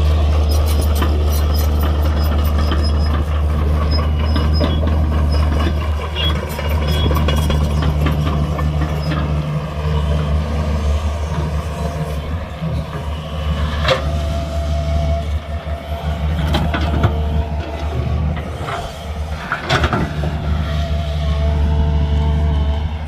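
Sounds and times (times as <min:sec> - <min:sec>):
diesel machinery engine drone: 0:00.0 - 0:23.0.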